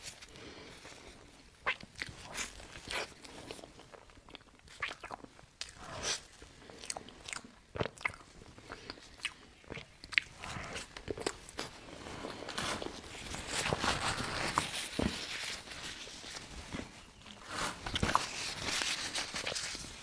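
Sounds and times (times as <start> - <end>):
chewing and biting cake: 1.6 - 13.8.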